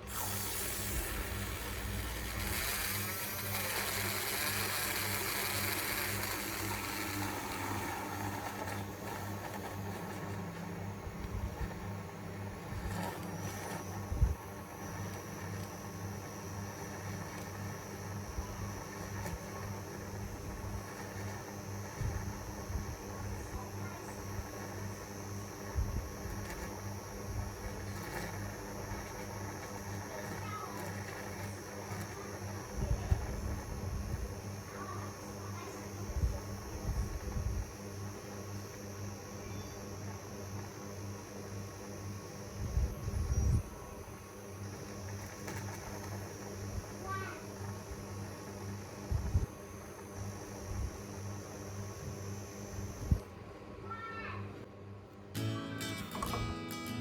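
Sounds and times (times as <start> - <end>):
milk hissing: 0.0 - 10.8
milk frother motor hum: 0.0 - 55.0.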